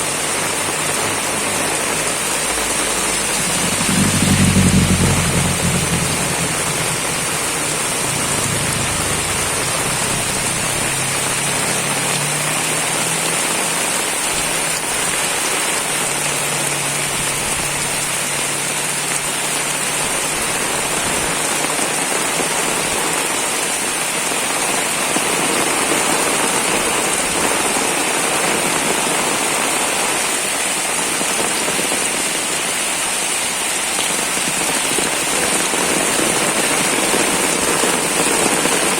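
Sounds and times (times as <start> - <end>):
heavy rain pouring: 0.0 - 38.9
low rumble: 1.9 - 12.2.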